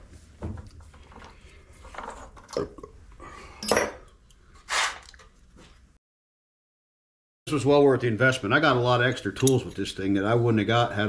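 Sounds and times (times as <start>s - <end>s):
metal tools clinking and knocking: 3.6s - 4.2s.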